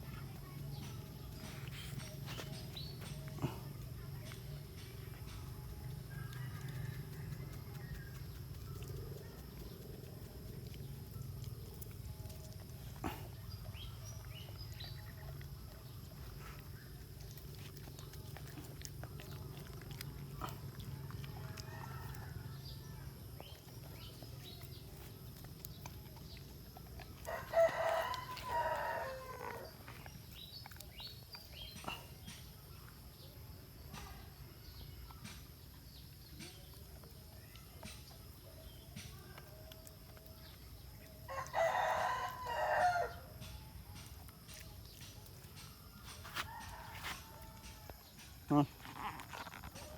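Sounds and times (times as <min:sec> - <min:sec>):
rooster crowing: 0:27.2 - 0:29.7, 0:41.3 - 0:43.3, 0:46.3 - 0:48.0.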